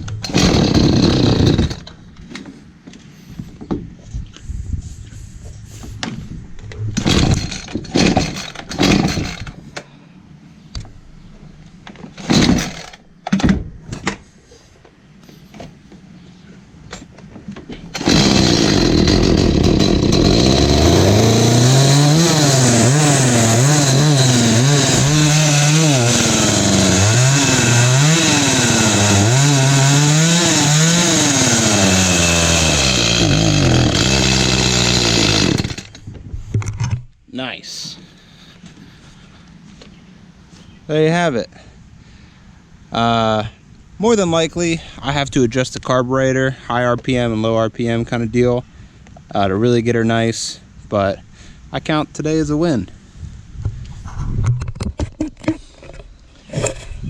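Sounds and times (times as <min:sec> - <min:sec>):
chainsaw engine revving: 0:00.2 - 0:01.9, 0:07.0 - 0:09.6, 0:12.2 - 0:13.0, 0:17.9 - 0:36.0
chainsaw pull-start bursts: 0:00.2 - 0:01.9, 0:07.0 - 0:09.6, 0:12.2 - 0:13.0, 0:17.9 - 0:36.0.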